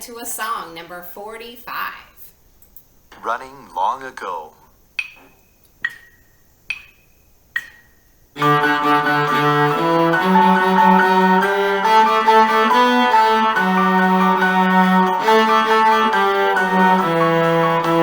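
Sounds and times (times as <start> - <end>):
count-in clicks: 5.0 - 8.0
bowed cello tune with accompaniment: 8.4 - 18.0.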